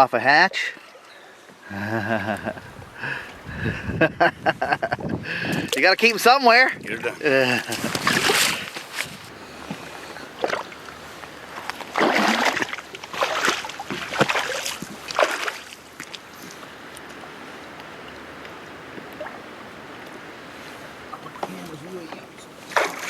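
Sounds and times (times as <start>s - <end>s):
water splashing and sloshing: 0.3s - 3.6s, 4.9s - 23.0s
faint rush of moving water: 5.5s - 23.0s.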